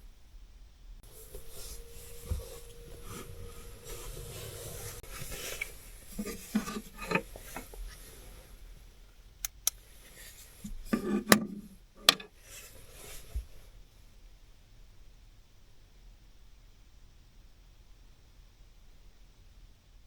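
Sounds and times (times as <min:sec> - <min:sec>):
faint steady hum: 0:00.0 - 0:20.0
rubbing and rustling of objects: 0:01.0 - 0:08.6.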